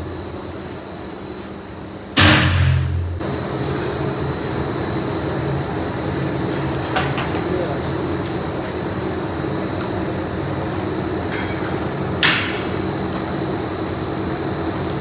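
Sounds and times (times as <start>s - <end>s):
factory machinery whining: 0.0s - 15.0s
loud burst with low hum: 2.2s - 3.5s.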